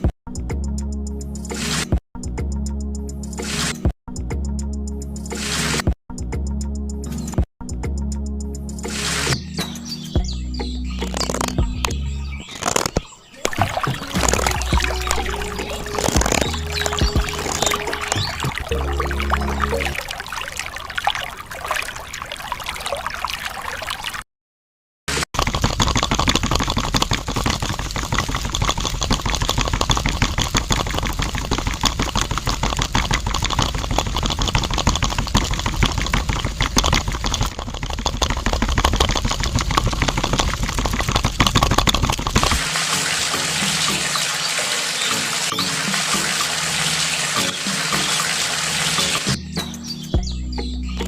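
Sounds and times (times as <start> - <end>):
water pouring and splashing: 11.0 - 24.2, 25.1 - 49.4.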